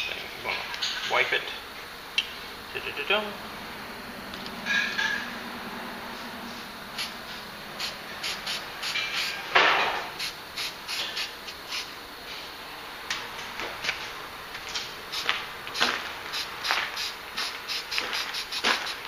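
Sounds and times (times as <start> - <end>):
spray paint hiss: 6.5 - 12.4, 14.8 - 19.0.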